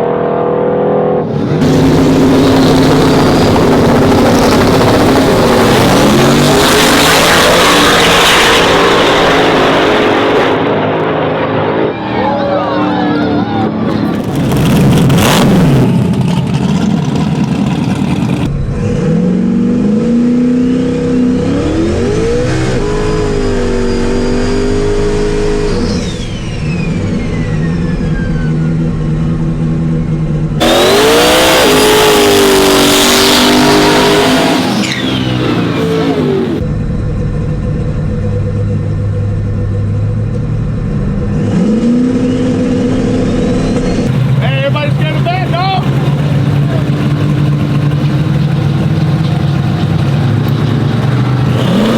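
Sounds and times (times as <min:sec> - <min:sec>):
truck engines revving: 0:00.0 - 0:51.9
long falling whine: 0:21.0 - 0:32.8, 0:33.4 - 0:44.1.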